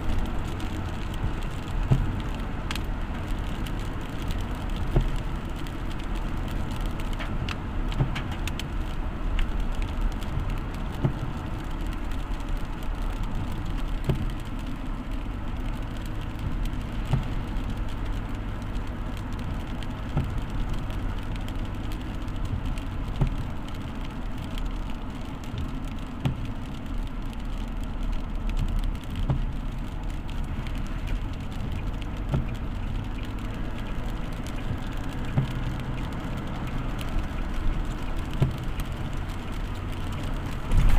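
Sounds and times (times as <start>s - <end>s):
road noise: 0.0s - 40.9s
vehicle engine humming: 0.0s - 40.9s.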